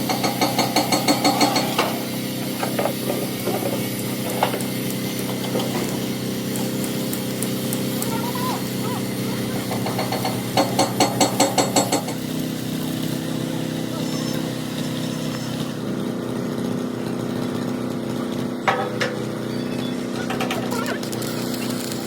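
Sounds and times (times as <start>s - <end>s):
engine running: 0.0s - 22.0s
metal knocks: 9.6s - 12.2s, 18.6s - 19.5s.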